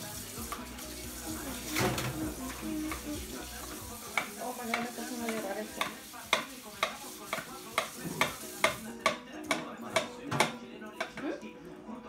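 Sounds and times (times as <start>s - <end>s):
knife chopping onion on board: 4.1s - 10.6s.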